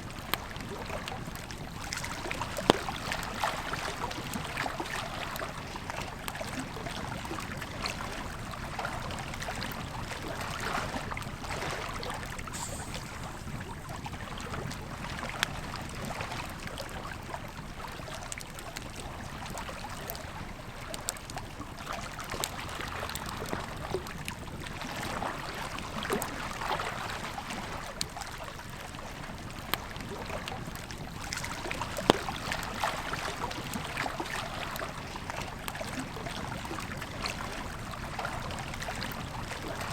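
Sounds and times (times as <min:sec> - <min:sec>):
river flowing: 0:11.4 - 0:15.2
campfire crackling and popping: 0:12.4 - 0:15.6.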